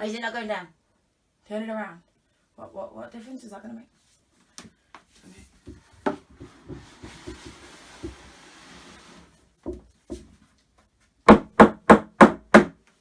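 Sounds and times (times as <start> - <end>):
wood rubbing scrape: 6.0 - 9.5.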